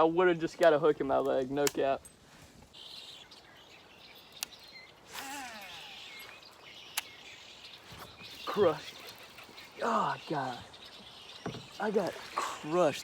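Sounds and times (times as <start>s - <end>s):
bird calling: 2.3s - 13.0s
sharp clicks: 4.3s - 7.2s.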